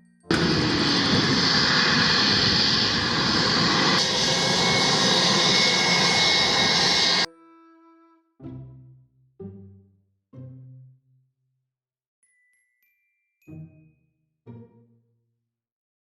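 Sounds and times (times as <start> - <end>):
airplane engine noise: 0.3 - 7.3.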